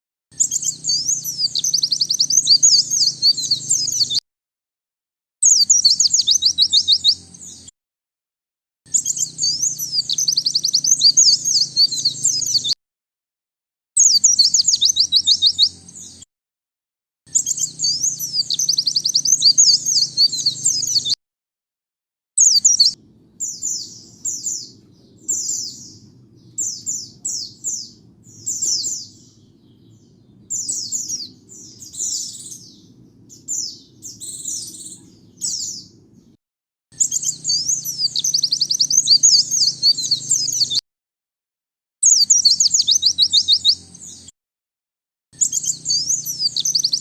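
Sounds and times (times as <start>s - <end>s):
bird twittering song: 0.3s - 4.2s, 5.4s - 7.7s, 8.9s - 12.8s, 14.0s - 16.3s, 17.3s - 21.2s, 22.4s - 40.8s, 42.0s - 44.3s, 45.4s - 47.0s.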